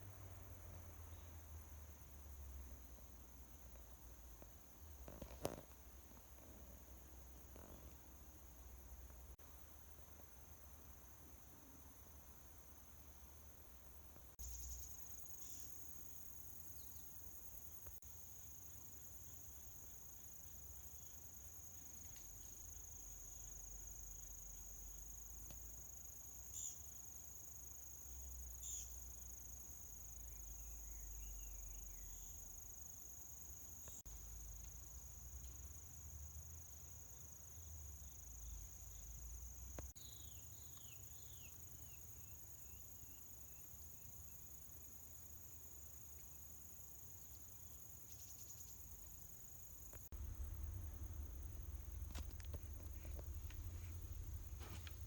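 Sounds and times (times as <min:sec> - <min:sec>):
high-pitched insect trill: 0:14.4 - 0:35.7, 0:36.8 - 0:55.0
low rumble: 0:50.1 - 0:55.0.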